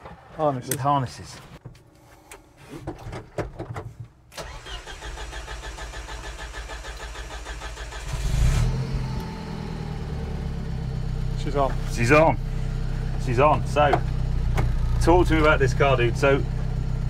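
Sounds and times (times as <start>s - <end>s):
engine cranked by starter: 4.3s - 10.5s
engine revving then idling: 5.4s - 17.0s.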